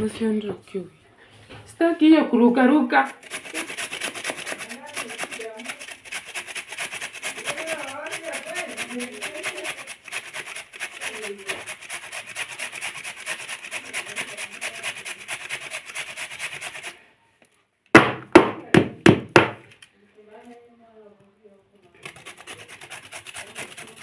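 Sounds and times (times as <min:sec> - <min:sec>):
fast rubbing or scraping: 0:02.6 - 0:17.0, 0:21.9 - 0:24.0
loud sharp knocks: 0:17.9 - 0:19.6.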